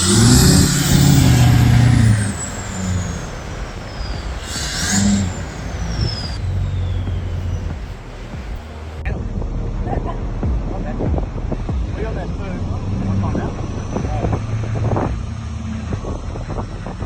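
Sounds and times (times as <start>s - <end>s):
engine revving hard: 0.0s - 9.0s, 10.4s - 17.0s
high whistle: 0.0s - 9.0s.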